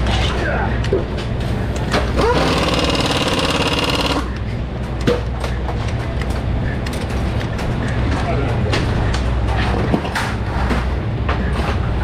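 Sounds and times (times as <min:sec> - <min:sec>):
low machinery drone: 0:00.0 - 0:12.0
pneumatic air tool rattling: 0:02.2 - 0:04.3.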